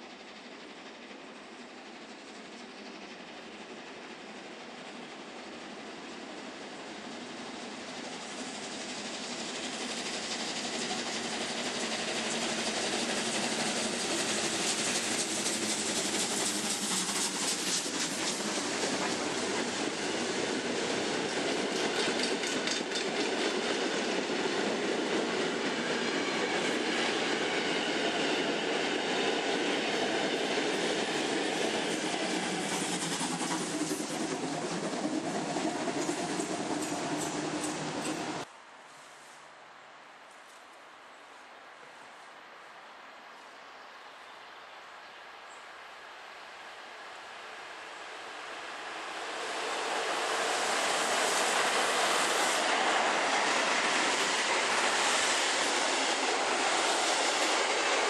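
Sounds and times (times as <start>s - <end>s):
train running on track: 0.0s - 38.5s, 45.4s - 58.0s
wheels clattering over rail joints: 12.2s - 25.8s.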